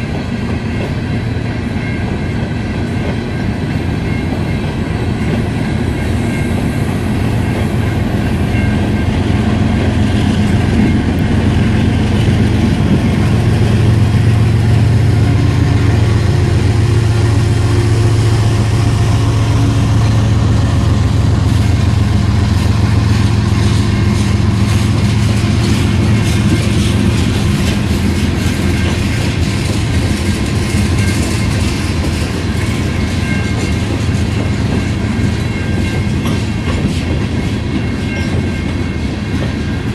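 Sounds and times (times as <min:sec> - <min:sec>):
train wheels rumbling on rail: 0:00.0 - 0:39.9
wheels clicking over rail joints: 0:21.4 - 0:39.9.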